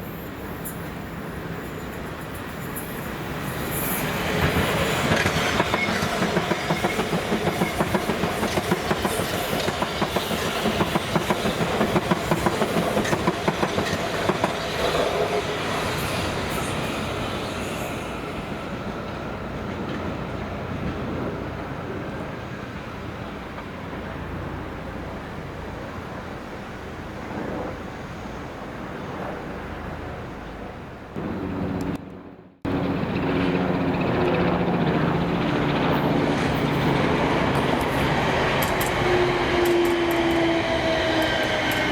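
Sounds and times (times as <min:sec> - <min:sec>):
train wheels clattering over rail joints: 0:04.4 - 0:15.0.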